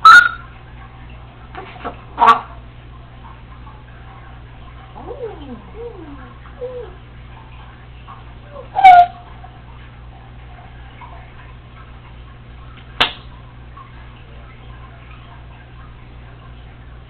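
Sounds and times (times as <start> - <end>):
parrot call: 8.6 - 9.2.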